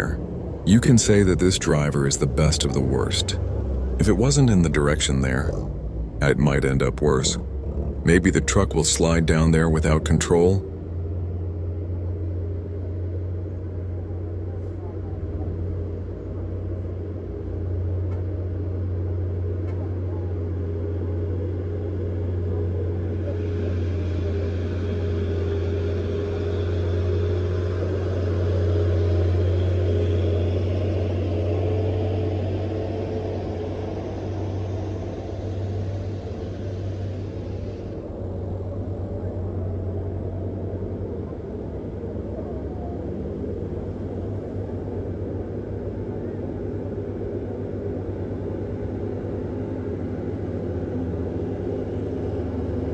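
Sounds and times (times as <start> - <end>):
diesel truck engine droning: 0.0 - 52.9.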